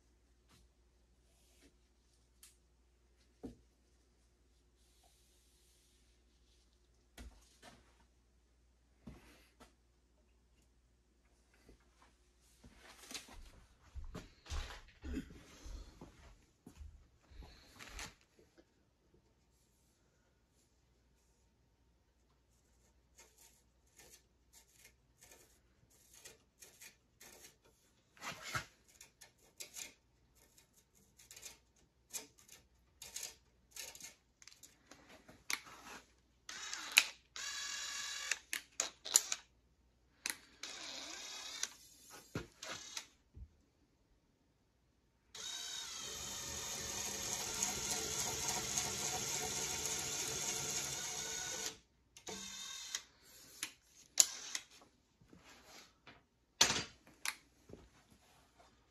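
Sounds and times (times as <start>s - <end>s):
small electric motor running: 36.5s - 38.4s, 40.6s - 41.7s, 45.4s - 53.1s.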